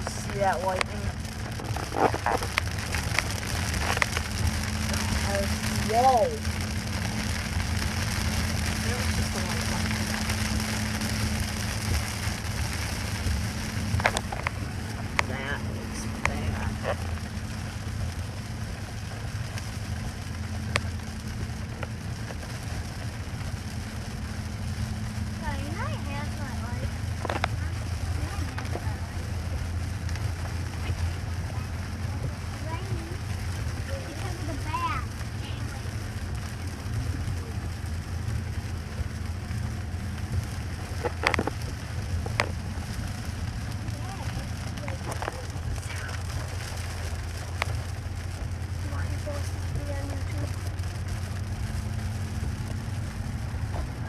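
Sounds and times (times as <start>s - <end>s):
heavy rain falling: 0.0s - 54.0s
raindrops tapping nearby: 0.0s - 54.0s.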